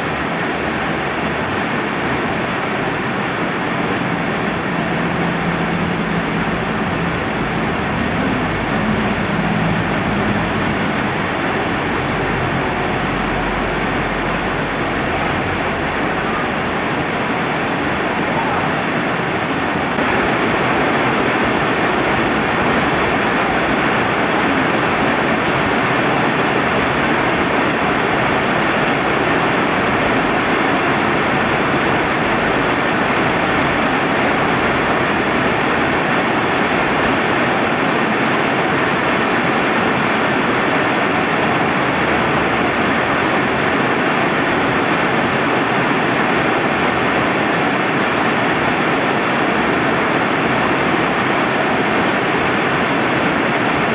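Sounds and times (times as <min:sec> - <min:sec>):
flowing river: 0:00.0 - 0:53.9
steady rain: 0:00.0 - 0:53.9.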